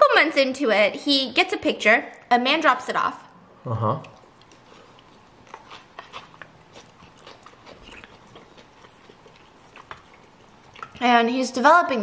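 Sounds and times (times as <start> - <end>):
person chewing noodles: 4.0 - 11.0.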